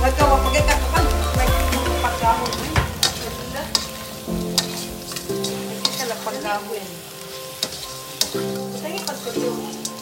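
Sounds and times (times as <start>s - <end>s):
music with held notes: 0.0s - 10.0s
shrimp sizzling in a pan: 0.0s - 10.0s
utensil clicking against pan: 7.6s - 10.0s.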